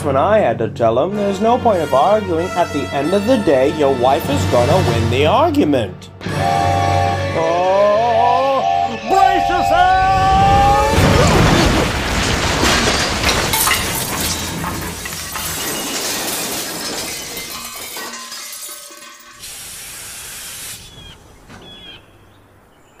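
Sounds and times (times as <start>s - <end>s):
debris clattering and rattling: 10.2s - 20.1s
loud crash with glass shattering: 10.2s - 20.1s
hiss of steam: 19.4s - 21.0s.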